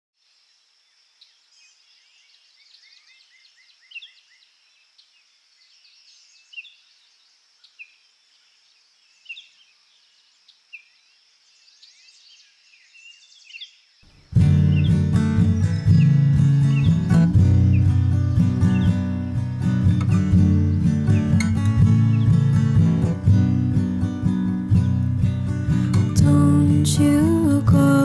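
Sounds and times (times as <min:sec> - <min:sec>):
songbirds chirping: 0:00.2 - 0:28.0
acoustic guitar strum: 0:14.3 - 0:28.0.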